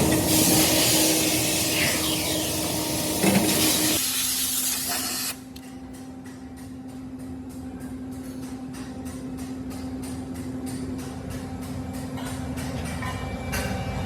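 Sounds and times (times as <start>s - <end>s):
machinery hiss: 0.0s - 5.4s.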